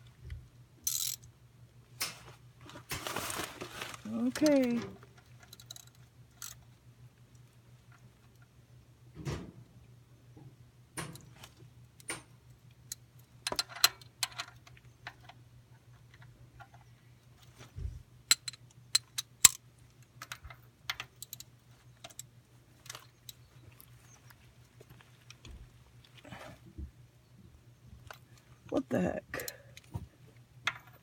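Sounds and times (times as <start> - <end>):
socket wrench clicking and clinking: 18.3 - 19.6, 20.2 - 22.3.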